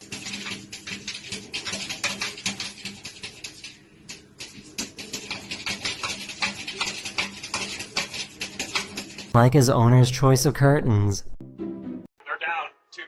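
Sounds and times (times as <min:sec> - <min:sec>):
scratching and tapping clicks: 0:00.0 - 0:09.4.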